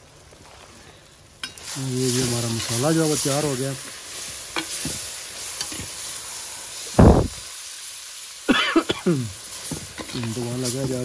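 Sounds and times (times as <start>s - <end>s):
masala sizzling in oil: 0.0s - 11.0s
spoon stirring in pan: 3.9s - 6.2s
loud dull thump: 7.0s - 7.4s.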